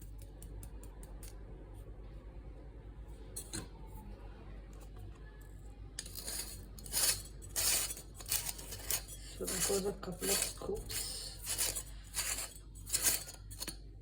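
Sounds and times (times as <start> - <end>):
spoon scraping metal: 6.0 - 13.8.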